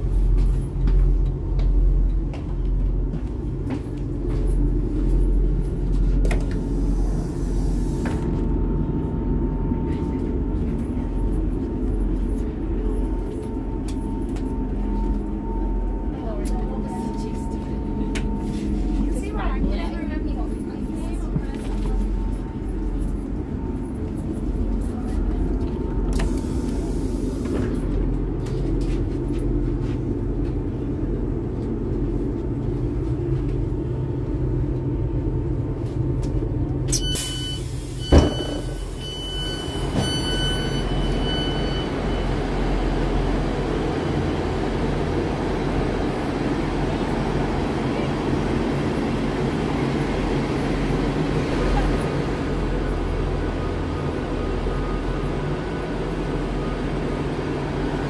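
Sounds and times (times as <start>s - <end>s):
station background noise: 0.0s - 58.0s
electronic door beeping: 36.9s - 42.4s.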